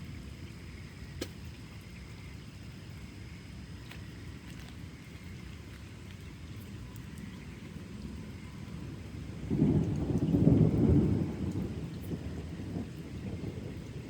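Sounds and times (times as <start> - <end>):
low thunder rumble: 7.4 - 14.0
loud roll of thunder: 8.8 - 14.0.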